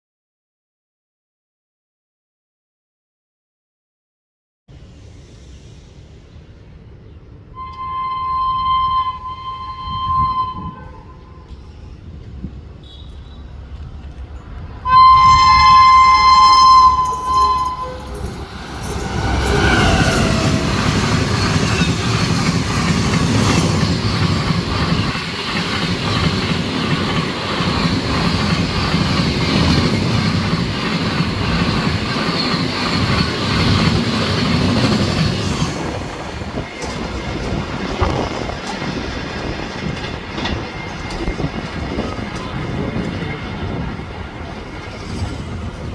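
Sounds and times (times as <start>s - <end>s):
train horn blast: 7.6s - 11.6s, 14.8s - 21.6s
train wheels clattering on rails: 11.4s - 45.9s.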